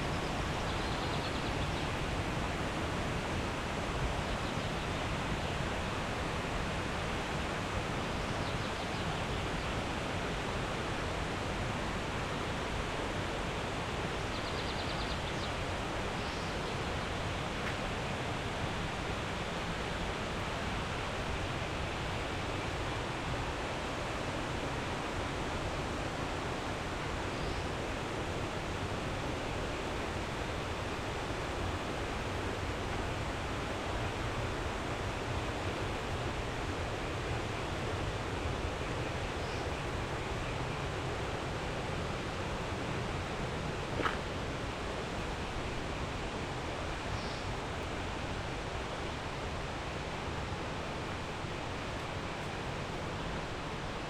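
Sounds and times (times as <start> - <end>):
waterfall rushing: 42.6 - 54.0.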